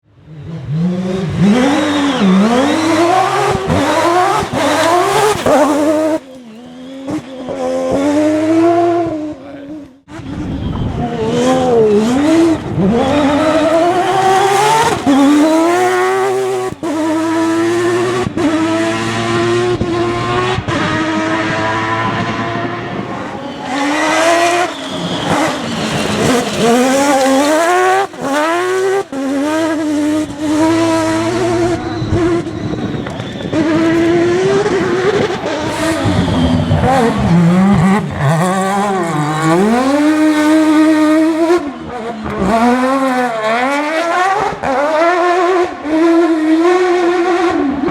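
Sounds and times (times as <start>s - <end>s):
rotary engine revving hard: 0.4s - 47.9s.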